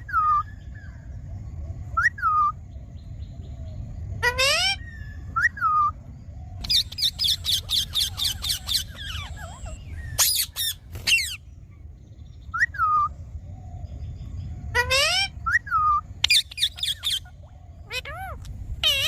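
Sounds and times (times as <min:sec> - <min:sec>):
parrot calling: 0:04.2 - 0:06.0, 0:06.6 - 0:11.5, 0:14.7 - 0:19.0.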